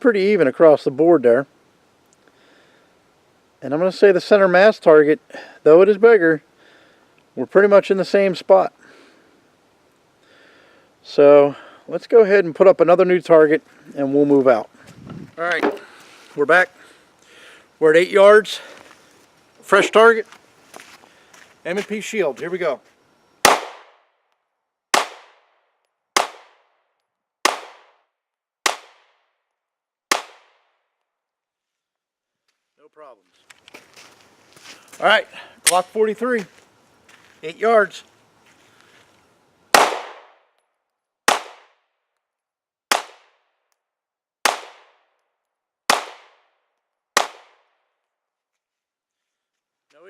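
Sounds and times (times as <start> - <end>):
pistol shots with echo: 23.4 - 24.0, 24.9 - 25.5, 26.2 - 26.6, 27.4 - 28.0, 28.6 - 29.2, 30.1 - 30.6, 39.7 - 40.4, 41.3 - 41.8, 42.9 - 43.4, 44.4 - 45.0, 45.9 - 46.5, 47.2 - 47.7.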